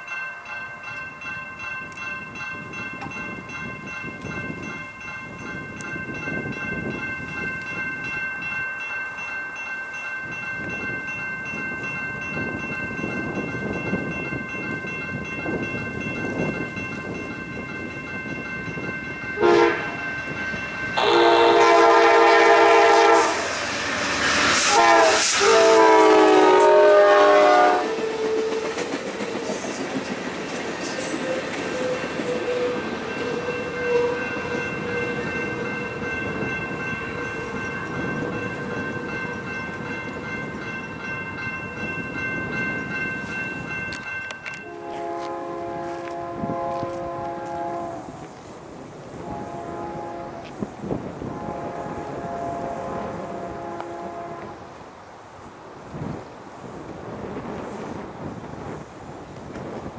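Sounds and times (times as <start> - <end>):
rumble of passing train: 0.0 - 59.9
diesel locomotive horn blasts: 19.4 - 20.0, 21.0 - 23.6, 24.3 - 28.9, 31.2 - 36.1, 44.6 - 48.2, 49.2 - 54.8.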